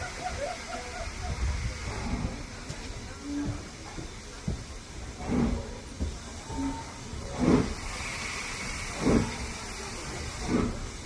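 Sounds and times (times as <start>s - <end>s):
steam hiss: 0.0s - 11.0s
steam locomotive exhaust beats: 0.0s - 11.0s
steady rumble: 1.4s - 9.6s.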